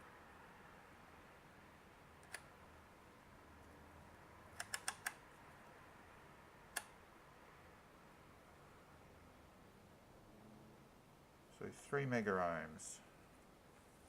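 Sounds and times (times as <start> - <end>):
small sharp clicks: 2.2 - 2.5, 4.5 - 5.3, 6.7 - 7.0.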